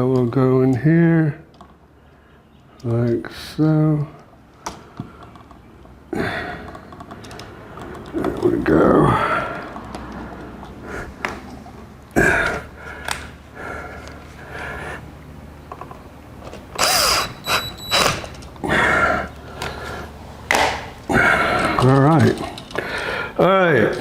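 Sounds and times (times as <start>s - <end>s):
hand tools clicking and knocking: 4.2s - 13.3s, 20.5s - 24.0s.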